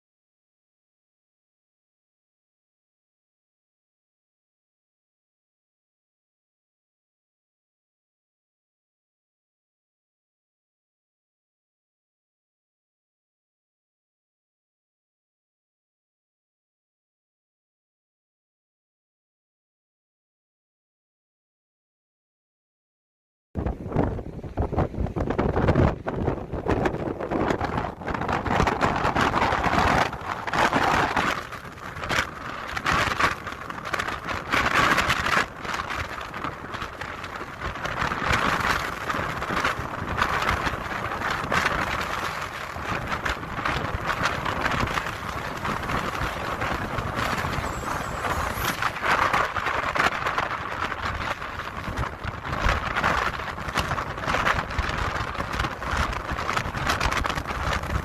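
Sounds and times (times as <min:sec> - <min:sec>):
strong wind gusting: 0:23.6 - 0:58.0
wind buffeting microphone: 0:23.6 - 0:58.0.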